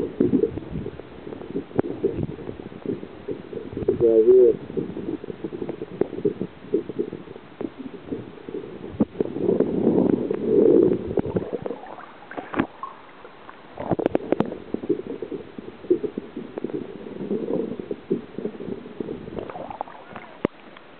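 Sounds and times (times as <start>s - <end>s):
water sloshing against kayak hull: 5.6s - 20.9s.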